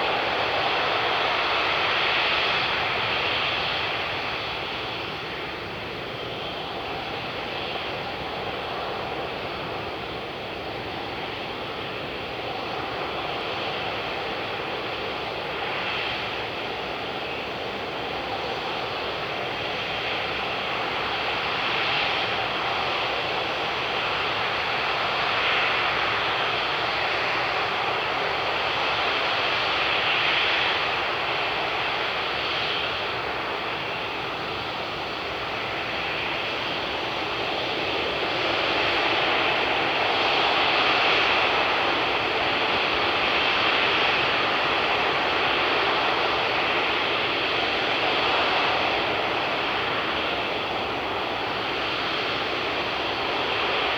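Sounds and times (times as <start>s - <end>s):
jet engines running: 0.0s - 53.9s.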